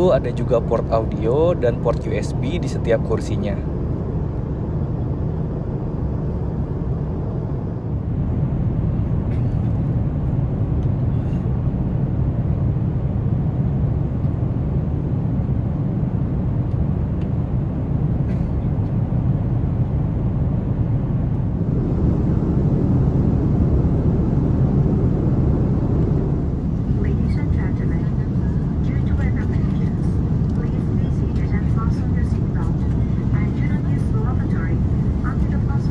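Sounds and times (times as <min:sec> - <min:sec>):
airplane cabin rumble: 0:00.0 - 0:35.9.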